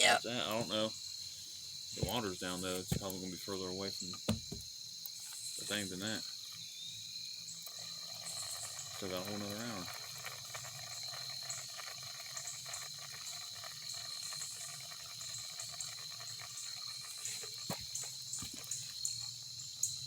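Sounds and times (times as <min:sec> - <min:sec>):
insects chirping: 0:00.0 - 0:20.0
short knocks: 0:04.2 - 0:04.7.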